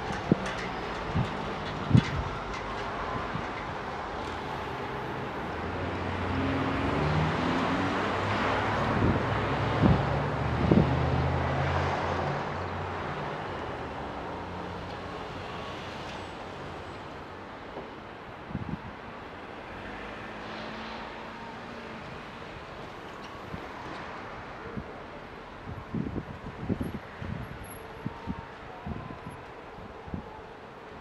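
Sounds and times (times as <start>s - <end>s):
car passing: 4.3s - 12.9s.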